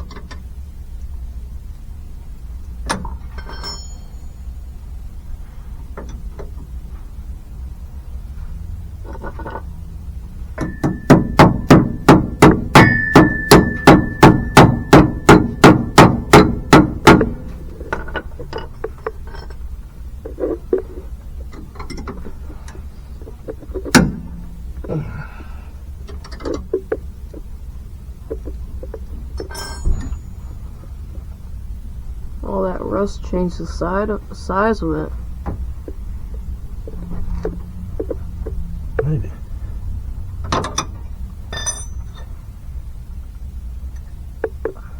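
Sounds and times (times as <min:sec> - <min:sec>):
hammer ringing on metal: 0:10.6 - 0:17.4.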